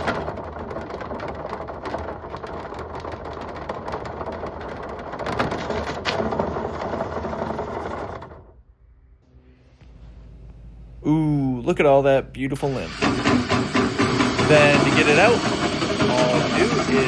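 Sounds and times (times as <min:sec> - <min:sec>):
drill motor whirring: 0:12.7 - 0:17.0.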